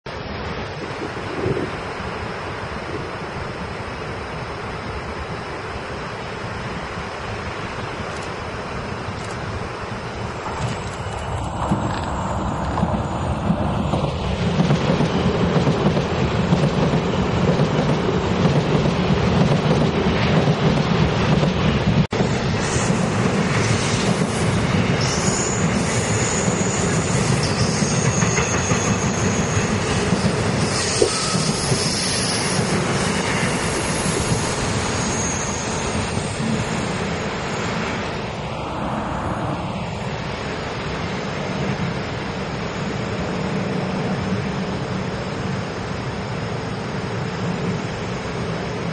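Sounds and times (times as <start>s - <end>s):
electric trains passing: 0.1s - 48.9s
high wheel squeal: 23.6s - 38.1s.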